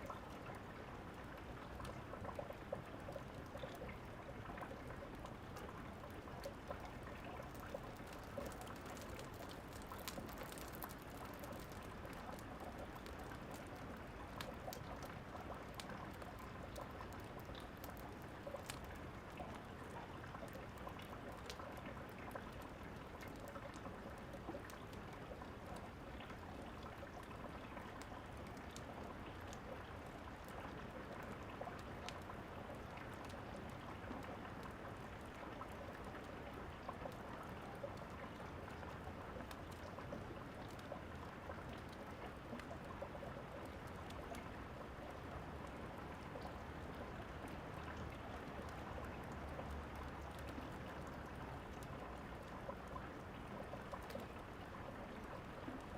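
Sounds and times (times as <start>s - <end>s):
steady rain falling: 0.0s - 55.9s
fireplace crackling and popping: 4.7s - 19.3s, 20.2s - 26.0s.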